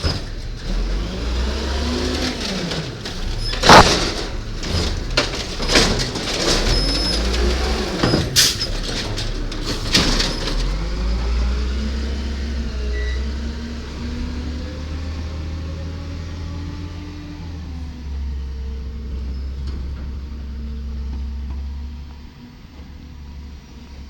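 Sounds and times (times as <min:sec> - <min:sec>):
diesel truck engine rumbling: 0:00.0 - 0:24.0
sharp bangs: 0:03.2 - 0:06.3.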